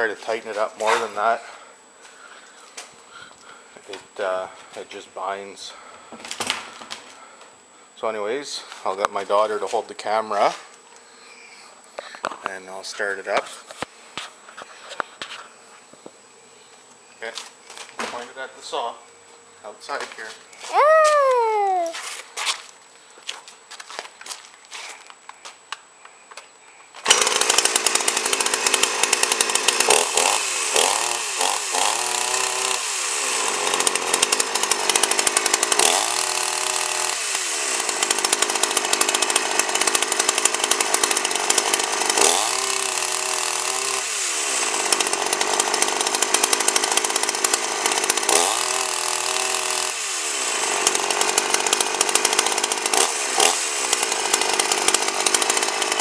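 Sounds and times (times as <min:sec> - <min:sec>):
chainsaw revving: 0:27.0 - 0:56.0.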